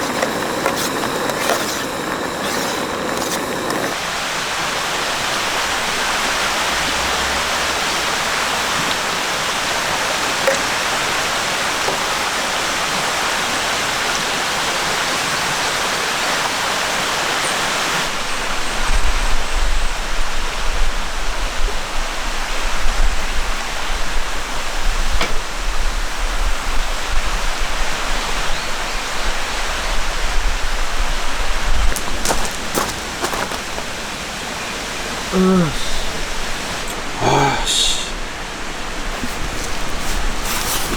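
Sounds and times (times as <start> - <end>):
stream water flowing: 0.0 - 18.1, 31.9 - 40.9.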